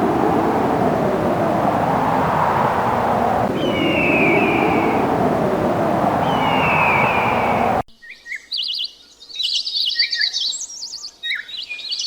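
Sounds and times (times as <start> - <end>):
loud steady rushing noise: 0.0 - 7.8
falling whistled call: 2.9 - 7.8
small birds singing: 3.5 - 5.1, 6.1 - 12.0.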